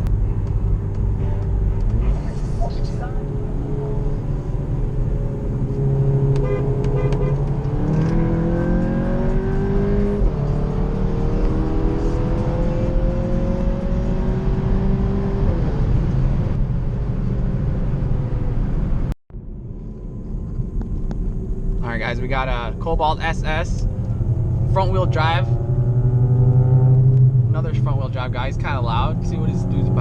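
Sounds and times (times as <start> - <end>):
car engine accelerating: 0.0 - 21.9, 22.5 - 30.0.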